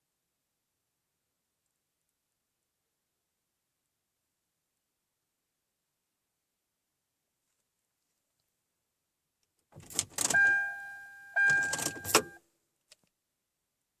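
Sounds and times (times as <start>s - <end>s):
car keys jangling and clicking: 9.8s - 12.4s.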